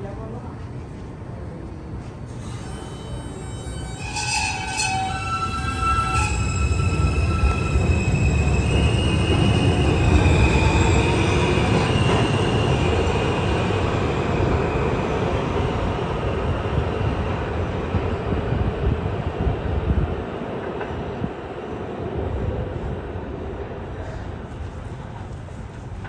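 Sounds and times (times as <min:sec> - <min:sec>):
subway train rumbling on rails: 0:00.0 - 0:26.0
high whining tones: 0:02.4 - 0:13.4.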